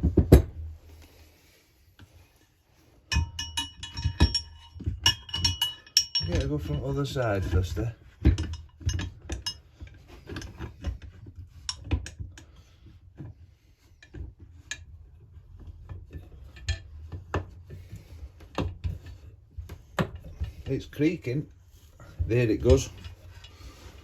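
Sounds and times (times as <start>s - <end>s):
hand tools knocking on metal: 3.1s - 9.6s, 22.0s - 23.9s.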